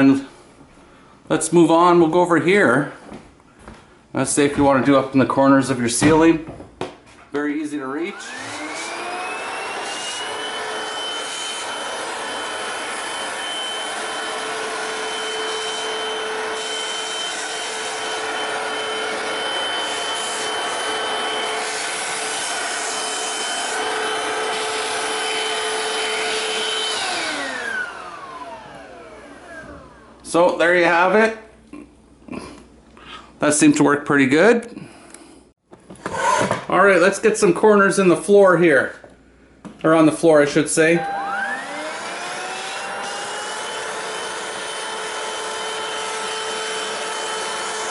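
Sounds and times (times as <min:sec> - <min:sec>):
cordless vacuum motor whine: 0:08.1 - 0:30.2, 0:40.9 - 0:47.9.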